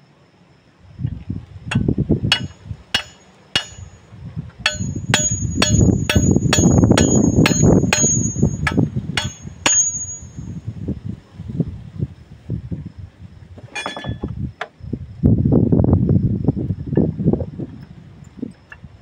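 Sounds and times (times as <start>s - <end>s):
hammer striking metal: 1.7s - 3.9s, 4.6s - 10.5s.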